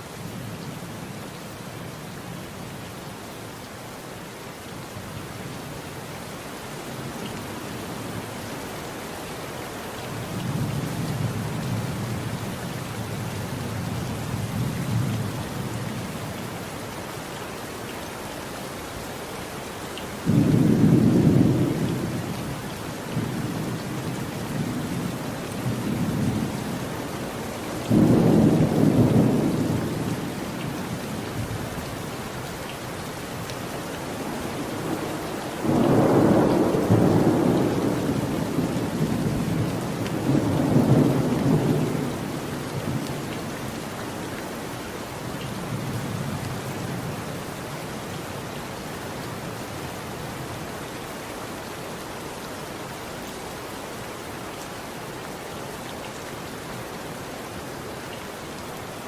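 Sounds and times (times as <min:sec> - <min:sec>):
steady rain: 0:00.0 - 0:59.0
distant thunder rumble: 0:34.2 - 0:43.2.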